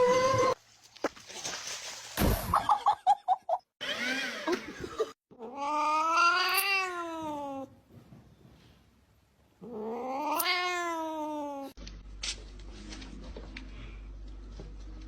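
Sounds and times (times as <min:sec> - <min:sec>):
laugh-like pulses: 0:03.8 - 0:05.2
cat meowing: 0:05.4 - 0:07.7, 0:09.6 - 0:11.8.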